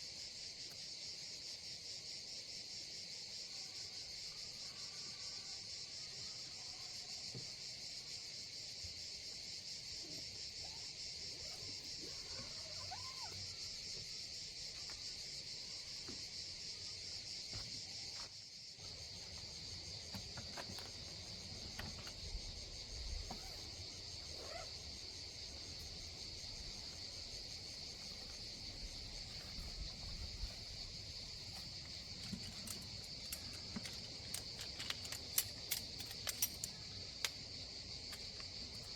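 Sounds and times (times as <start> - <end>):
crickets and insects chirping: 0.0 - 38.9.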